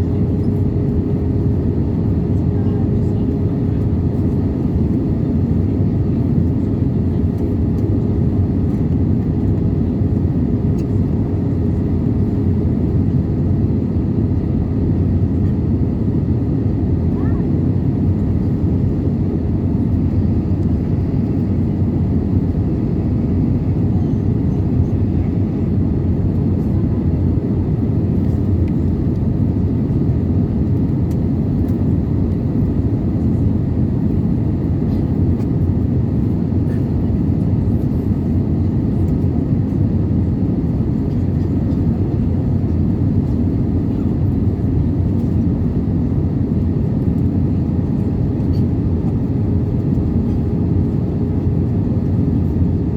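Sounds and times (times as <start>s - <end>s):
airplane cabin drone: 0.0s - 52.9s.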